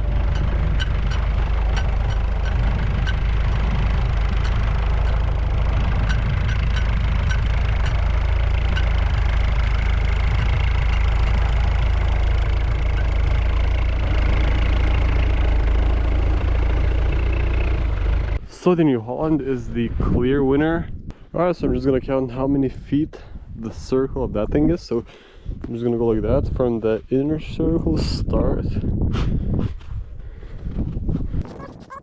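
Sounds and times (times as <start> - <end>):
loader diesel engine running: 0.0 - 18.4.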